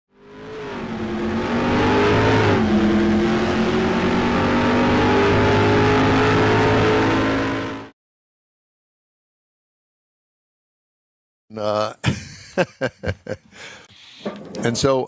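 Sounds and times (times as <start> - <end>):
car engine at high revs: 0.1 - 7.9.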